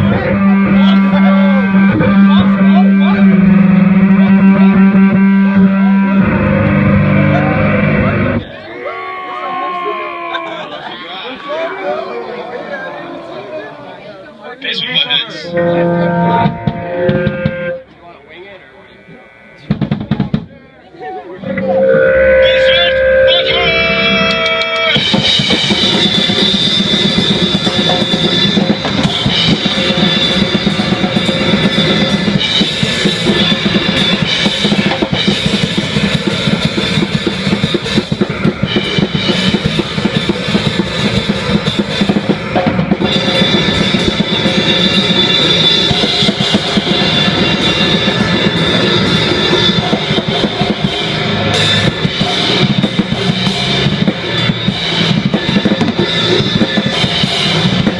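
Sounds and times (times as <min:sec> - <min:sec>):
drum kit pounding: 0:00.0 - 0:08.5, 0:14.8 - 0:18.3, 0:19.6 - 0:20.6, 0:22.5 - 0:57.9
distorted noise wall: 0:00.0 - 0:08.6, 0:21.4 - 0:57.9
live band music: 0:00.0 - 0:12.0, 0:14.6 - 0:18.3, 0:21.2 - 0:57.9.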